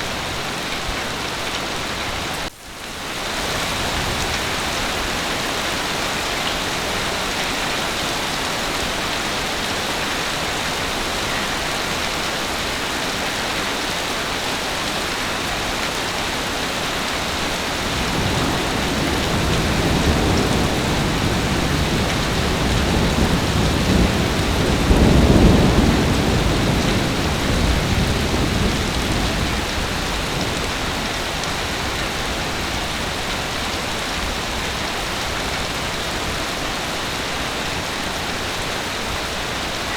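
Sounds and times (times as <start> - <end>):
heavy rain falling: 0.0 - 39.9
rolling thunder: 17.6 - 33.0.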